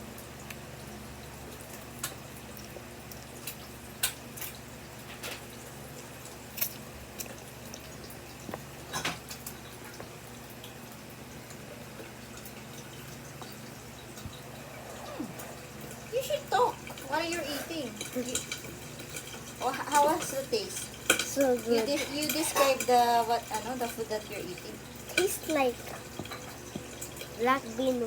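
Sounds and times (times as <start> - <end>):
wet mouth eating sounds: 14.2 - 16.1.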